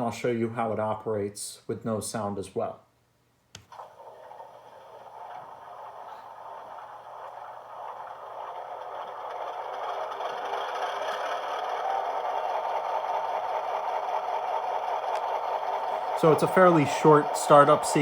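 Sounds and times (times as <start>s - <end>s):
model locomotive diesel engine startup: 3.8s - 18.0s.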